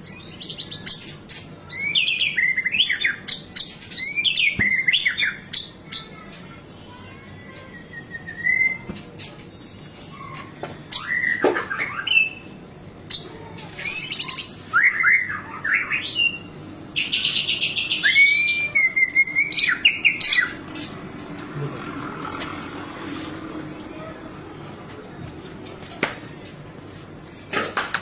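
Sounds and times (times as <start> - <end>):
bird song with whistles and trills: 0.0 - 6.1, 7.4 - 20.9.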